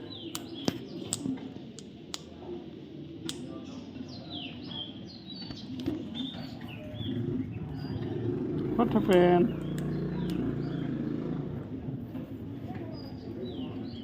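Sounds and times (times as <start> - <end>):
sharp clicks: 0.3 - 2.3.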